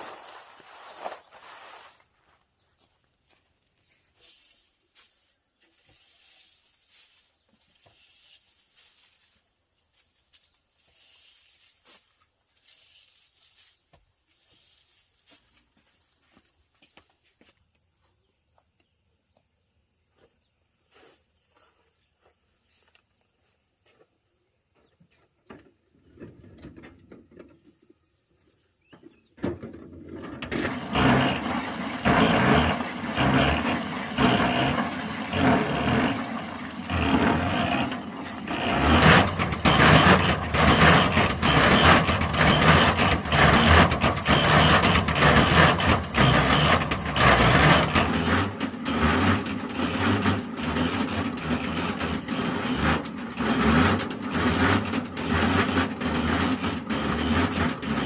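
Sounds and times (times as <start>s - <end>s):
small engine running: 30.2s - 58.0s.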